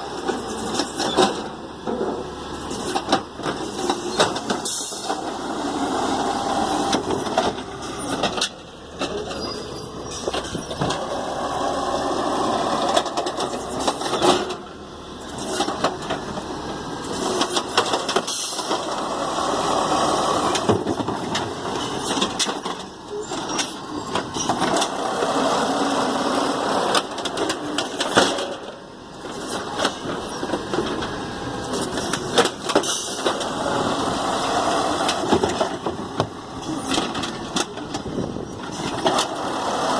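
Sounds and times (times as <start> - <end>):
garbage truck engine running: 0.0 - 39.9
clanks and knocks: 20.5 - 25.0, 26.9 - 33.6, 35.0 - 39.4.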